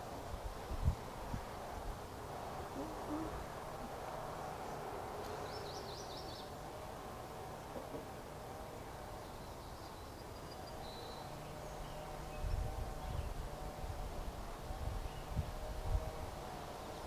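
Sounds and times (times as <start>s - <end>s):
faint bird chirps: 9.2s - 13.4s.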